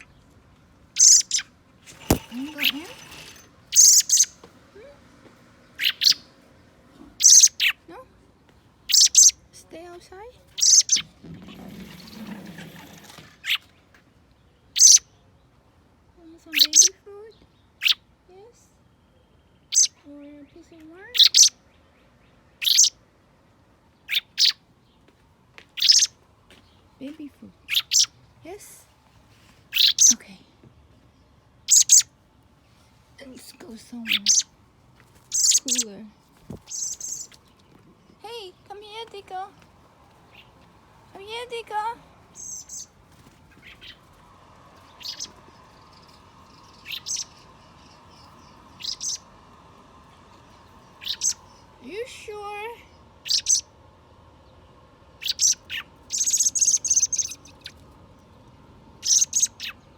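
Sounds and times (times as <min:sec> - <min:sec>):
young bird chirping: 0:01.0 - 0:04.5, 0:05.7 - 0:06.4, 0:07.1 - 0:07.9, 0:08.8 - 0:09.5, 0:10.4 - 0:13.7, 0:14.7 - 0:15.2, 0:16.5 - 0:18.0, 0:19.7 - 0:20.0, 0:21.1 - 0:21.7, 0:22.6 - 0:23.0, 0:24.0 - 0:24.6, 0:25.8 - 0:26.2, 0:27.6 - 0:28.2, 0:29.7 - 0:30.3, 0:31.6 - 0:32.1, 0:33.9 - 0:34.6, 0:35.2 - 0:38.2, 0:42.3 - 0:44.1, 0:44.8 - 0:49.4, 0:50.2 - 0:52.0, 0:52.9 - 0:53.7, 0:55.2 - 0:59.9.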